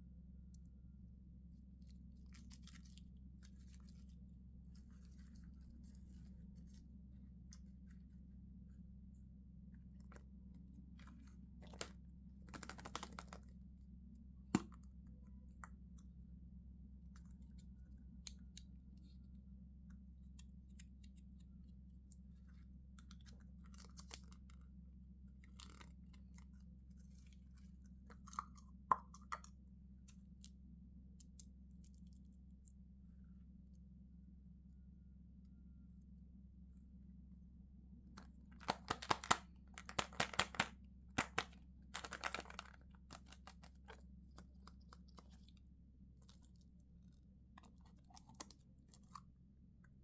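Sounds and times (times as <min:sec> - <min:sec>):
faint steady hum: 0:00.0 - 0:50.0
plastic wrapper crinkling: 0:11.6 - 0:11.9, 0:12.5 - 0:13.5, 0:38.6 - 0:45.5.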